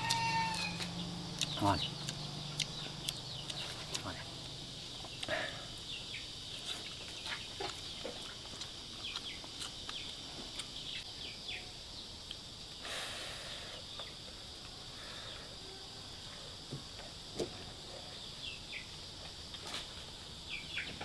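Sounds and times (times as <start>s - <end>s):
bird chirps: 0.0s - 4.2s
insect drone: 0.0s - 21.0s
rustle: 16.0s - 21.0s.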